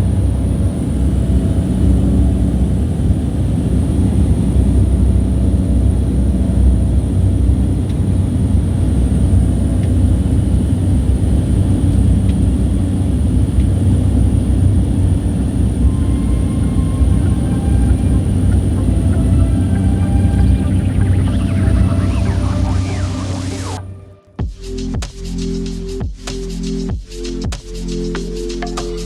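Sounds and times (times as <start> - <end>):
propeller plane engines droning: 0.0 - 24.1
airflow: 15.1 - 24.3.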